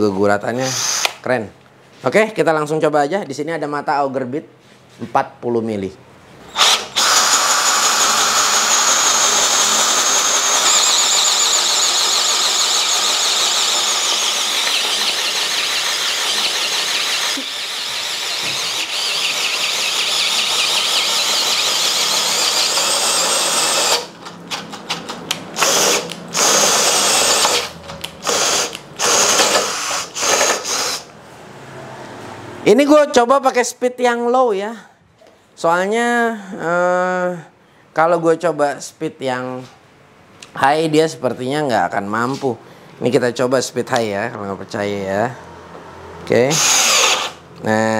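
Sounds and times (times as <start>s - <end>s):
cordless drill boring into wood: 0.6s - 1.2s, 6.5s - 24.2s, 25.6s - 31.1s, 46.5s - 47.4s.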